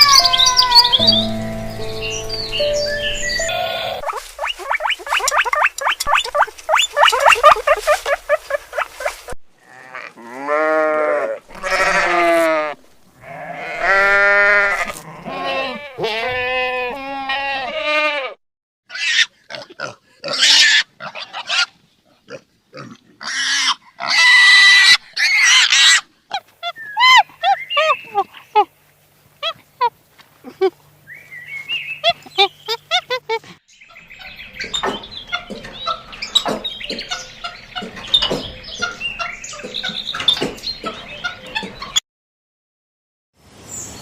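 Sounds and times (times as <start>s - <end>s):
long rising and falling animal calls: 3.3s - 9.4s
rapid high animal calls: 3.4s - 9.4s.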